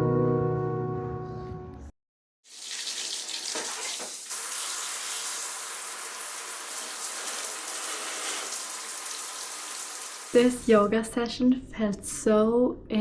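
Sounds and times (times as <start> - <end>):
water running from a tap: 2.5 - 10.8.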